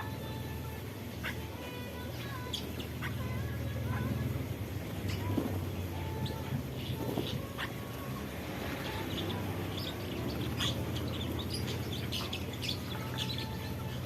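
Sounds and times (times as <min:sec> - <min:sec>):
small birds chirping: 0:00.0 - 0:14.0
steady low hum: 0:00.0 - 0:14.0.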